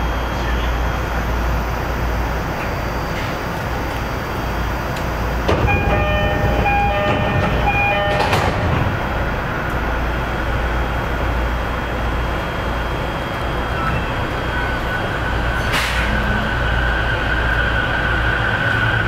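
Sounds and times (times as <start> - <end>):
train wheels rumbling on rail: 0.0 - 19.0
bell-like tones ringing: 5.7 - 8.6.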